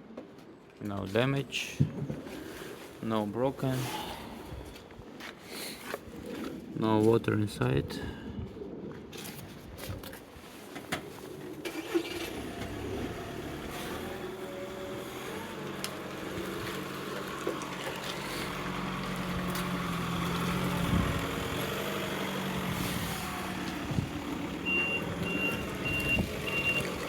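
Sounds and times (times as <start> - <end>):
vehicle engine running: 12.3 - 27.0.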